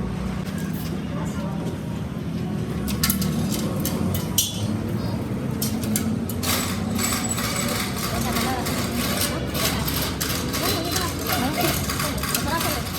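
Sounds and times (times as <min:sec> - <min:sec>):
metal clinks and knocks: 0:05.6 - 0:12.9.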